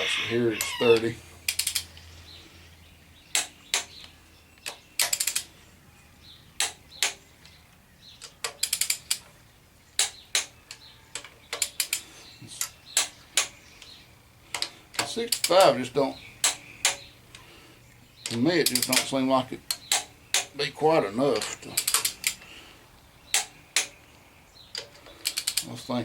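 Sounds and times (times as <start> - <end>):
torque wrench clicking: 1.5 - 2.0, 4.6 - 5.5, 8.4 - 9.2, 21.8 - 22.4, 24.8 - 25.7.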